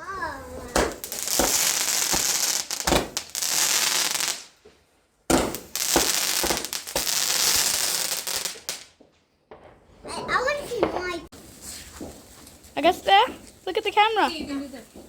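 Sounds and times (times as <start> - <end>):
firework hissing and crackling: 0.2 - 4.6, 5.3 - 8.9, 11.4 - 15.0.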